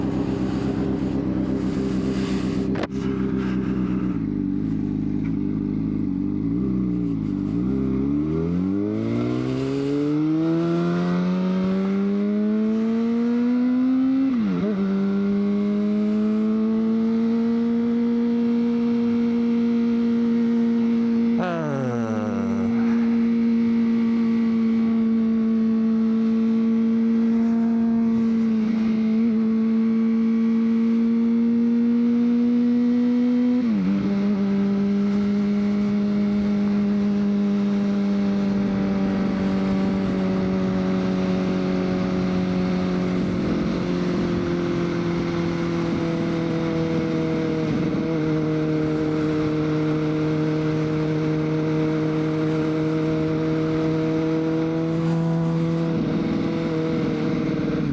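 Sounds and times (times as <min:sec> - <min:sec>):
motorcycle engine revving: 0:00.0 - 0:14.2, 0:14.8 - 0:25.4.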